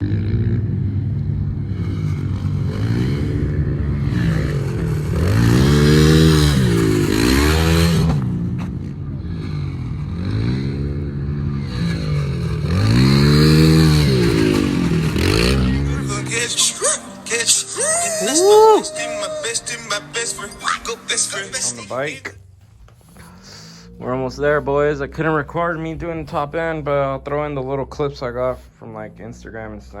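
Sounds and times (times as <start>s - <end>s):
pit bike engine revving: 0.0s - 22.1s.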